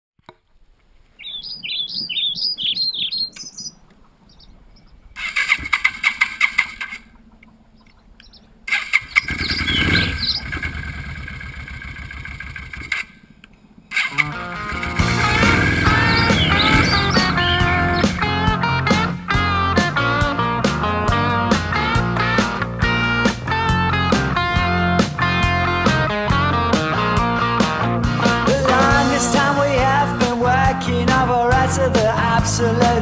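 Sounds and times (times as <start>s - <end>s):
birds chirping: 0.9s - 20.4s
motorcycle engine running: 5.2s - 7.4s, 8.7s - 33.0s
motorcycle starter rattling: 5.2s - 7.5s, 8.7s - 18.6s
music: 14.2s - 33.0s.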